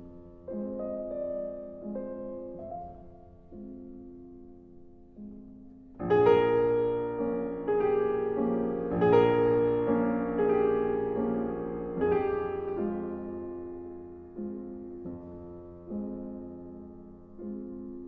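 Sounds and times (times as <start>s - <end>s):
soft piano music: 0.0s - 18.0s.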